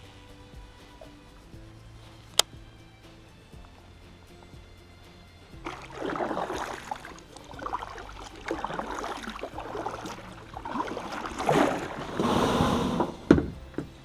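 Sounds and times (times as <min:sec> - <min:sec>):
paddle strokes splashing water: 0:03.6 - 0:14.0.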